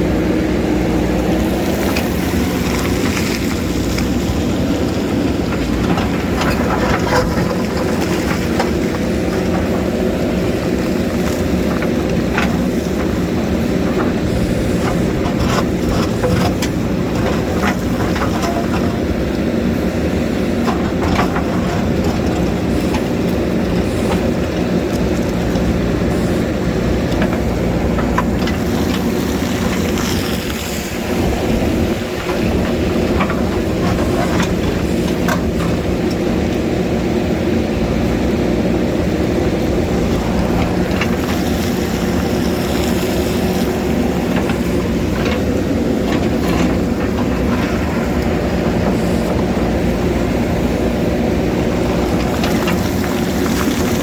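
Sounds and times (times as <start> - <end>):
diesel engine running: 0.0 - 54.0
bucket knocking and scraping rock: 1.4 - 36.2, 51.6 - 54.0.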